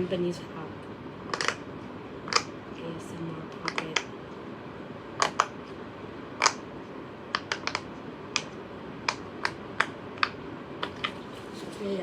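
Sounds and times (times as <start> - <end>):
fidget toy bubbles popping: 7.3 - 7.8.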